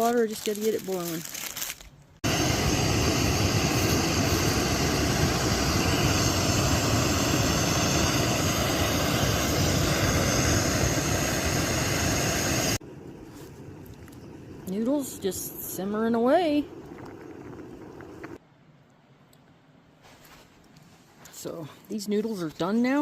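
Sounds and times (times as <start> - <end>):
camp stove burner roaring: 2.2 - 18.4.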